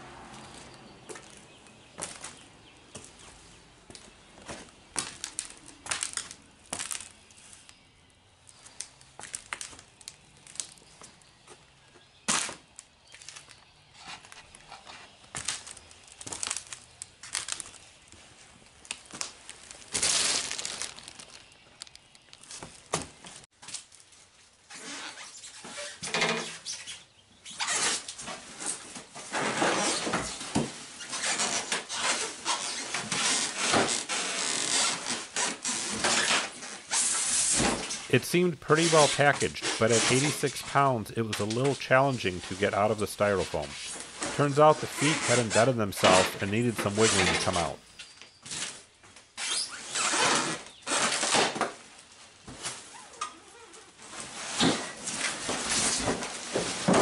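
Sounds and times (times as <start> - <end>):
cardboard and styrofoam packing handled: 13.2 - 25.9, 27.5 - 57.0.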